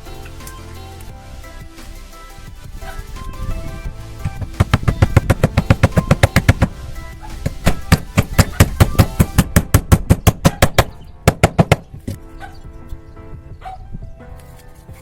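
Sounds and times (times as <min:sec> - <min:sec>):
faint background music: 0:00.0 - 0:15.0
fast sharp knocks: 0:04.2 - 0:06.7, 0:07.4 - 0:11.9.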